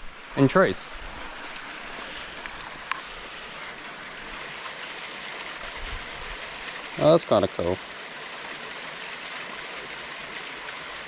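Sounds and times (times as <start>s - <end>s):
creek water running: 0.0s - 11.0s.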